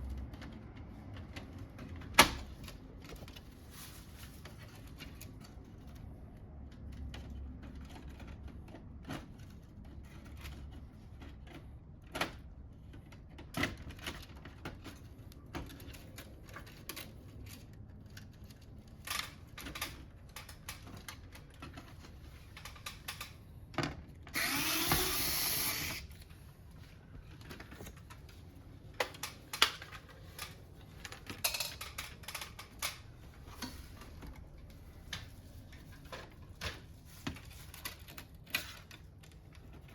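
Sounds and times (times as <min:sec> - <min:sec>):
plastic parts clicking and knocking: 0:04.5 - 0:39.9
power screwdriver whirring: 0:24.4 - 0:26.2.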